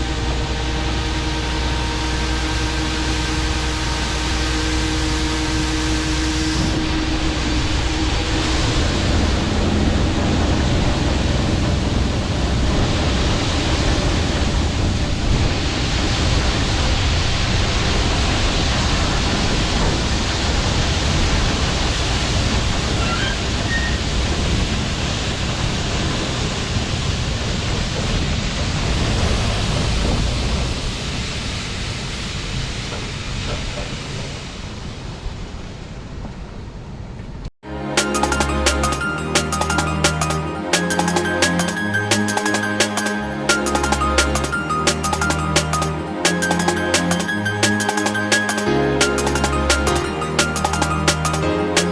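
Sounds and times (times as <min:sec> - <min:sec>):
harvest machinery rushing and rumbling: 0:00.0 - 0:36.9.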